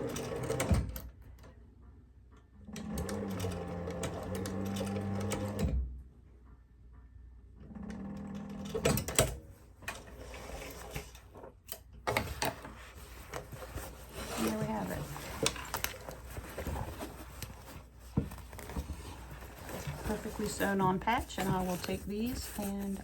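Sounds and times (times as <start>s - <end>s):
sewing machine stitching: 0.0s - 1.1s, 2.7s - 5.8s, 12.1s - 23.0s.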